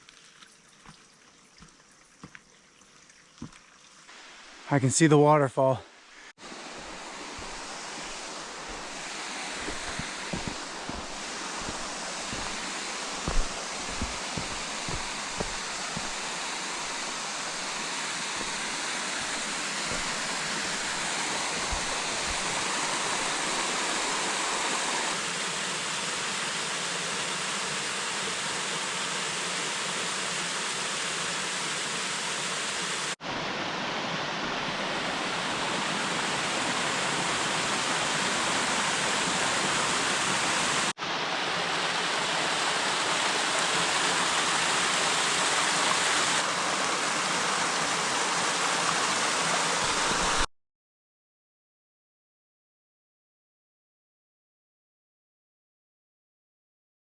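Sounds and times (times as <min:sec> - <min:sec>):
waterfall rushing: 0:06.4 - 0:50.5
low thuds: 0:09.6 - 0:17.7.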